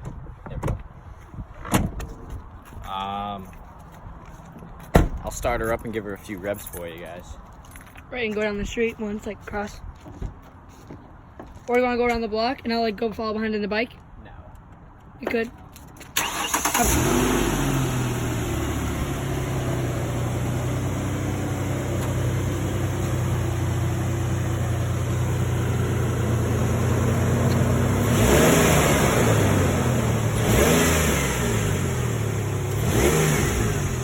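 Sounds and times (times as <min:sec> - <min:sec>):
car engine idling and revving: 0:16.1 - 0:34.0.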